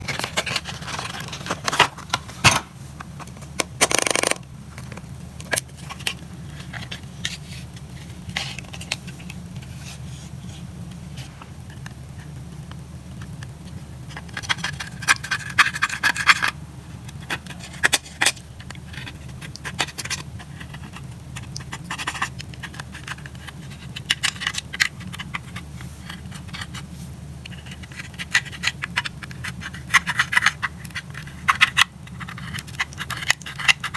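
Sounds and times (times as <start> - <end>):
steady low hum: 0.0 - 33.9
scraping with crackling clicks: 10.9 - 33.9.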